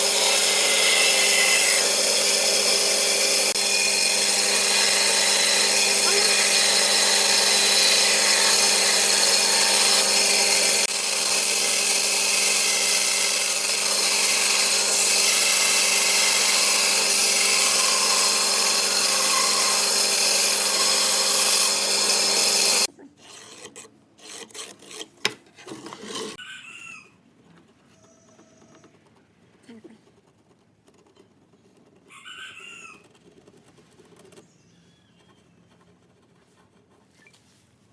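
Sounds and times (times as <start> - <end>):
power tool working wood: 0.0 - 22.9.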